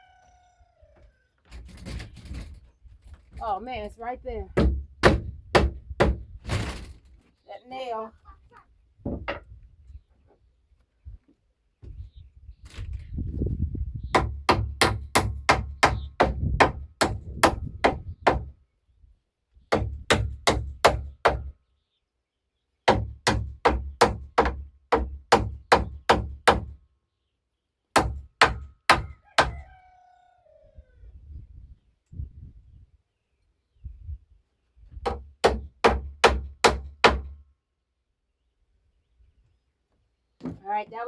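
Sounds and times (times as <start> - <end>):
hammer pounding on wooden door frame: 4.6 - 6.2, 14.1 - 18.5, 19.7 - 21.5, 22.9 - 26.8, 28.0 - 29.6, 35.0 - 37.4.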